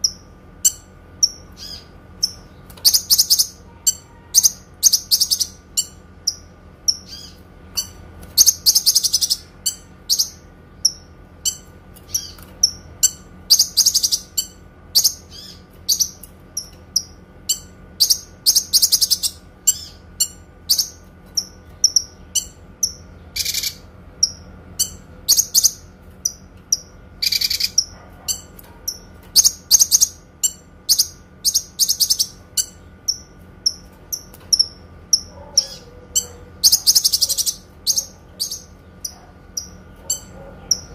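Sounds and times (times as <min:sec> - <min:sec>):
faint steady hum: 0:00.0 - 0:40.9
songbird singing: 0:00.0 - 0:40.9.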